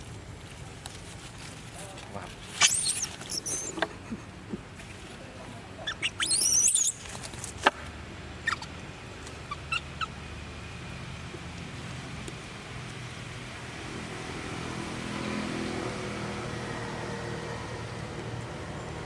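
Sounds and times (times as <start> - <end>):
monkey chirps and clicks: 2.4 - 4.0, 5.8 - 7.4, 8.4 - 10.2
baby monkey squealing: 2.6 - 3.8, 5.8 - 7.1, 8.4 - 8.7, 9.4 - 10.2.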